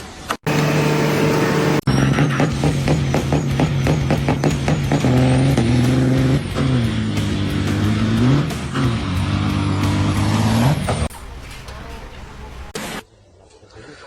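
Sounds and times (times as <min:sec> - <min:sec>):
vehicle engine running: 0:00.5 - 0:11.4
music: 0:01.9 - 0:11.0.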